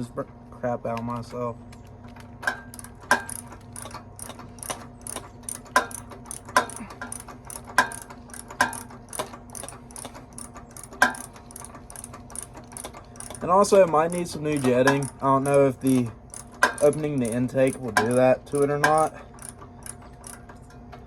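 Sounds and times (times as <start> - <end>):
ratchet wrench clicking: 2.4 - 20.5
tool knocking on metal: 13.3 - 19.1.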